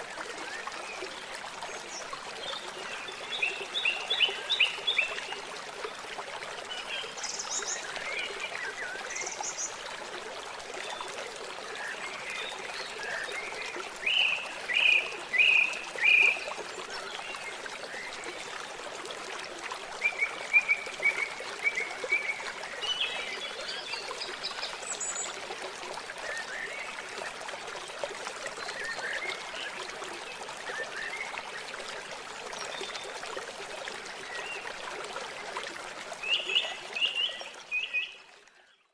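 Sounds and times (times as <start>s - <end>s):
water trickling: 0.0s - 38.8s.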